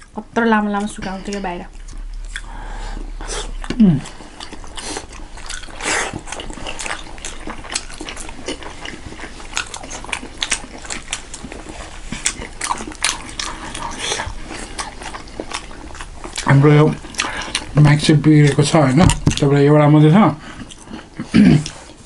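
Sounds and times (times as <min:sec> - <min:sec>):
chewing: 0:00.0 - 0:22.0
noodle soup slurping: 0:01.8 - 0:09.2.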